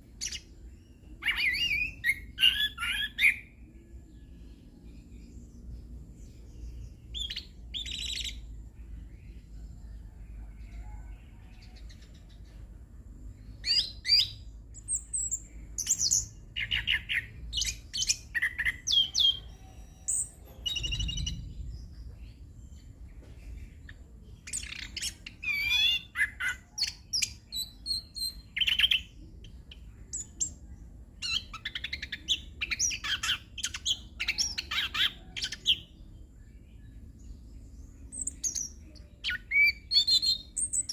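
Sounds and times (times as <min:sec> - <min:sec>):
faint low background rumble: 0:03.4 - 0:40.9.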